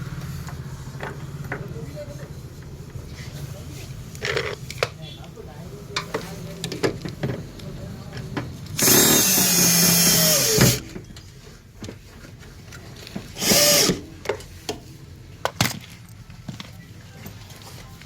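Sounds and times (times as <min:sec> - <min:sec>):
hand-held power tool running: 0:08.8 - 0:10.8, 0:13.4 - 0:14.0.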